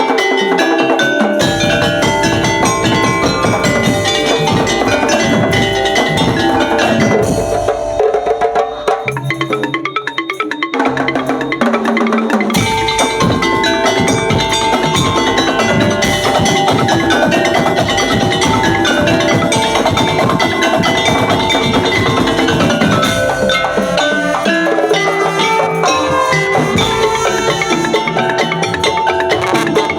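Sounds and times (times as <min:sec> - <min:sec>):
drums: 0:00.0 - 0:29.9
mallet percussion: 0:00.0 - 0:29.9.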